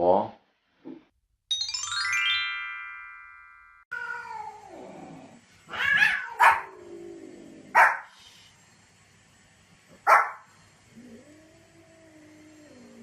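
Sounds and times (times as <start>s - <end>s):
chime jingle: 1.5s - 3.9s
pet whining: 3.9s - 8.1s
dog yelps: 5.7s - 6.7s.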